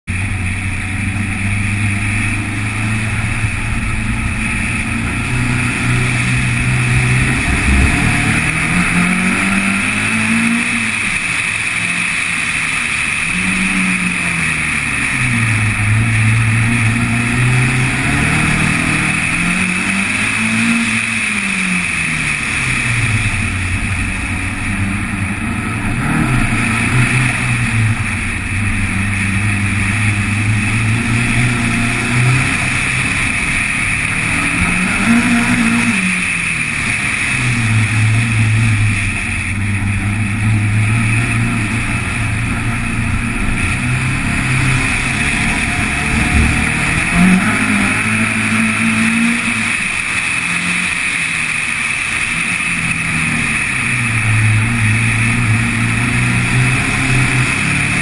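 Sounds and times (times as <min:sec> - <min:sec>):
race car engine revving: 0:00.0 - 0:58.0
wind and road noise hiss: 0:00.1 - 0:58.0.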